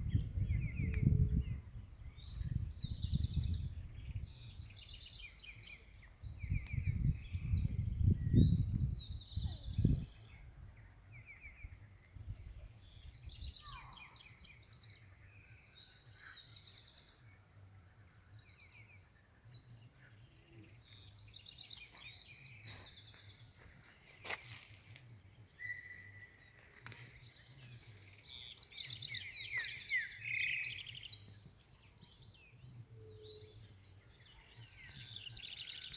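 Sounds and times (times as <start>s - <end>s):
wild birds chirping and trilling: 12.6s - 35.9s.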